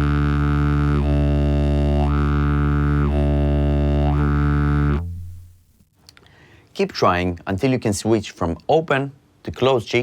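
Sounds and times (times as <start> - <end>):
didgeridoo drone: 0.0 - 5.5.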